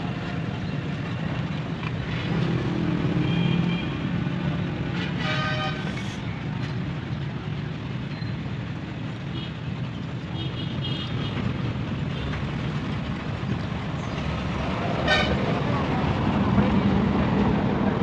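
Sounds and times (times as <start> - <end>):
road traffic noise: 0.0 - 18.0
vehicle horn: 5.0 - 6.0, 15.0 - 15.4.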